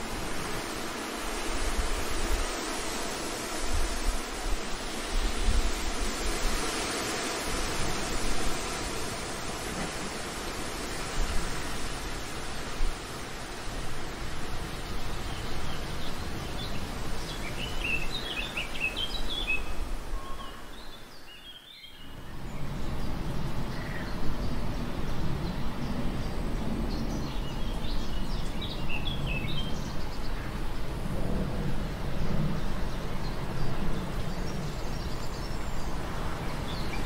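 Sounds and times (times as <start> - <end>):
steady rushing noise: 0.0 - 37.0
small birds chirping: 7.6 - 30.9, 32.6 - 37.0.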